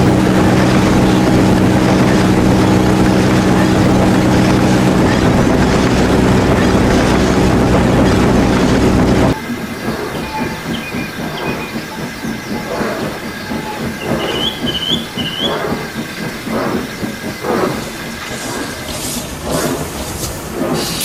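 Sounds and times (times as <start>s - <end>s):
train clattering: 0.0s - 21.0s
high squeals: 7.8s - 16.0s
high steam-like hiss: 9.4s - 21.0s.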